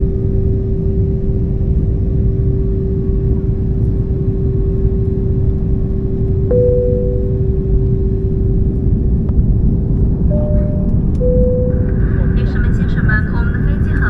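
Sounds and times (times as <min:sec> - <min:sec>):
airliner engines and airflow rumbling: 0:00.0 - 0:14.0
constant hum: 0:00.0 - 0:14.0
higher tone: 0:06.5 - 0:08.2, 0:10.3 - 0:12.0.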